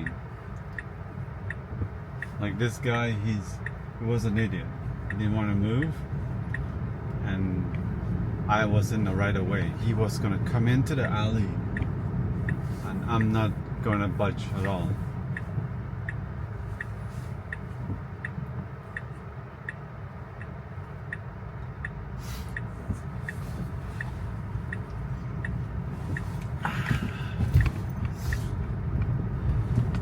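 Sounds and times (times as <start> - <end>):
turn signal ticking: 0.0 - 30.0
tyres rumbling on wet road: 21.4 - 30.0.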